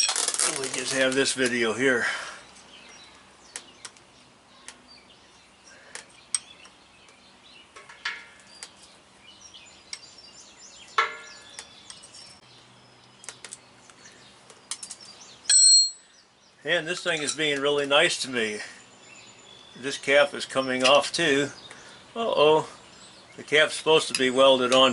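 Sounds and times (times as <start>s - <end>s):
ringing metal clank: 11.0s - 11.4s, 15.5s - 16.0s
sharp high metallic ring: 15.5s - 16.1s
hand tools clinking on metal: 16.8s - 18.0s.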